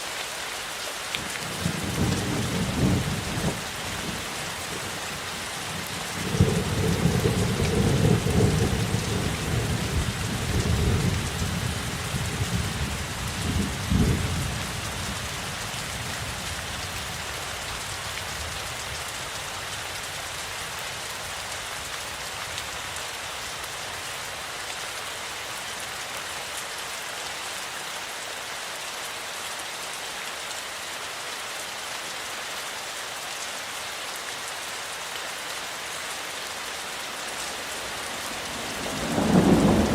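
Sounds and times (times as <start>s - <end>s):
heavy rain hissing: 0.0s - 39.9s
thunder rumbling: 38.5s - 39.9s.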